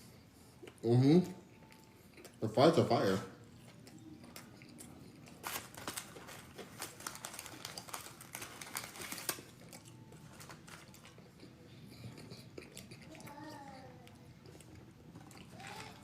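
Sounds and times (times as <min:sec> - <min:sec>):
crunchy chewing of fries: 0:00.0 - 0:16.0
paper packaging crinkling: 0:05.3 - 0:11.2, 0:15.4 - 0:16.0.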